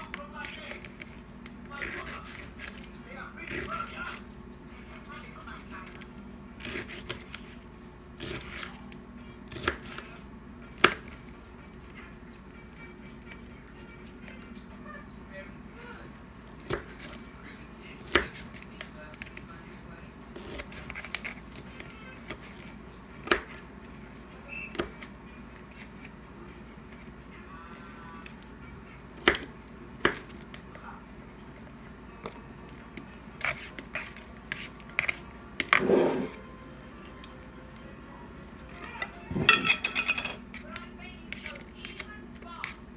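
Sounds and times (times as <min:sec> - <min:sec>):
knife chopping on cutting board: 0:01.8 - 0:02.8, 0:06.6 - 0:07.4, 0:09.5 - 0:10.1, 0:10.7 - 0:11.2, 0:16.6 - 0:17.2, 0:18.0 - 0:18.6, 0:20.4 - 0:21.6, 0:23.2 - 0:23.6, 0:29.1 - 0:30.5, 0:33.4 - 0:36.4
rustling handling scrapes: 0:33.4 - 0:36.6.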